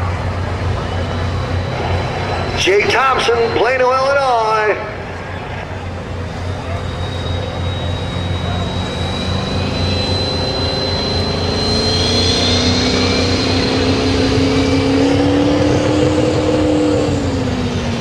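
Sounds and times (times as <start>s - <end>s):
high steady whine: 0.0s - 18.0s
announcer speaking: 2.6s - 5.2s.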